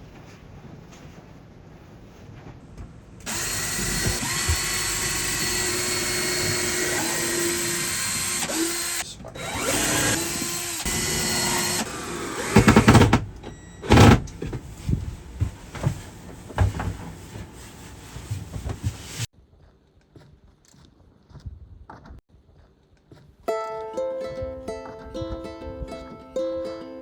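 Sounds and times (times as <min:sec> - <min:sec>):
power drill running: 0:03.2 - 0:14.2
loud knocks: 0:09.8 - 0:14.6.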